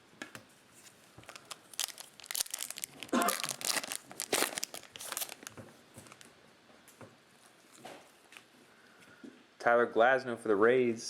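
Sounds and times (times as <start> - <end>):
foil wrapper tearing and crinkling: 1.2 - 6.3.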